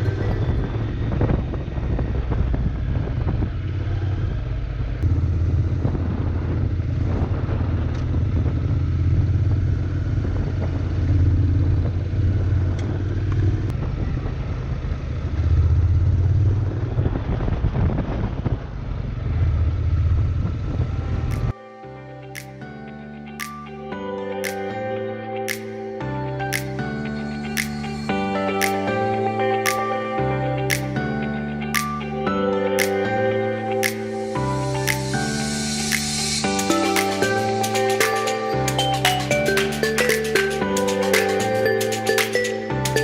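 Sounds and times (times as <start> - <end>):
motorcycle engine running: 0.0 - 21.5
wind rushing on microphone: 0.0 - 21.5.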